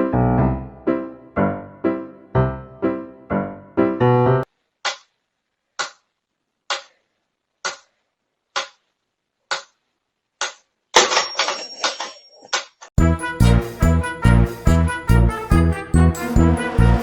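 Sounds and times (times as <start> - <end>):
music with steady beat: 13.0 - 17.0.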